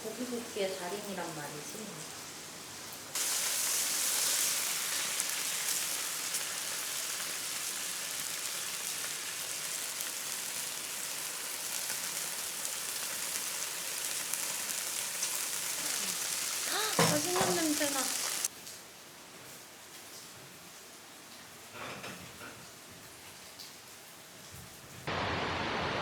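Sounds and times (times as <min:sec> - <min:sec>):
meat sizzling on a grill: 0:00.1 - 0:18.5.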